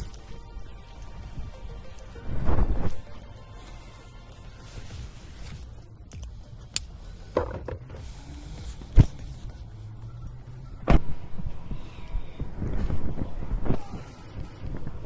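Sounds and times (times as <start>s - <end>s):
sharp knocks and thumps: 7.3s - 8.0s.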